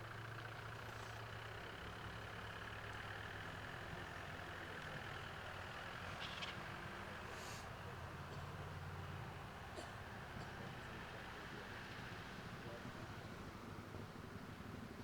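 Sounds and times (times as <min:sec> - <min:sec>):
faint low engine hum: 0:00.0 - 0:15.0.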